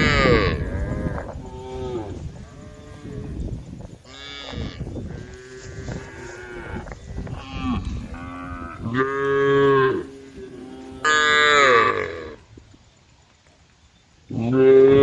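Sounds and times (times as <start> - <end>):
cows mooing: 0.0 - 3.5, 4.1 - 12.4.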